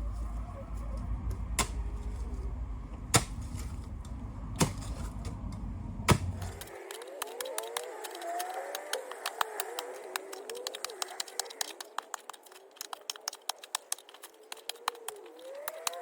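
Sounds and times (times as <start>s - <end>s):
low background rumble: 0.0s - 6.7s
digging tool striking stony ground: 1.5s - 2.4s, 3.0s - 9.2s.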